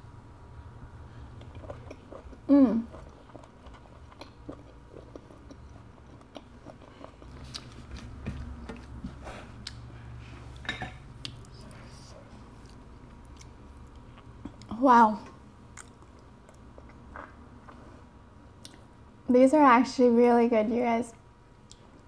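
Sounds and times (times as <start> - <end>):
faint chewing with mouth clicks: 1.1 - 14.8, 15.7 - 19.0, 21.5 - 22.0.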